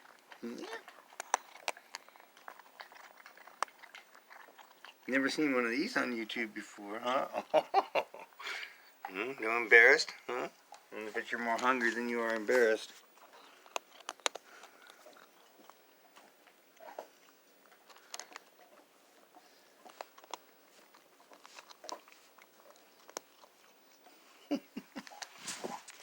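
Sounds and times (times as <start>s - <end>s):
cat chewing crunchy food: 0.0s - 26.0s.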